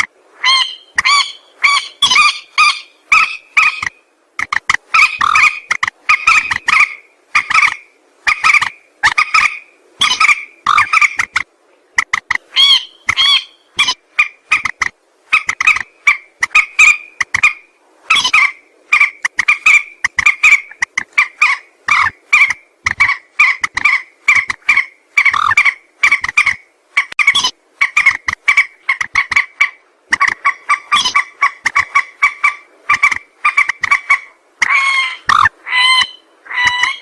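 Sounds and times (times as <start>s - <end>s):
rail croaking calls: 0.0s - 37.0s.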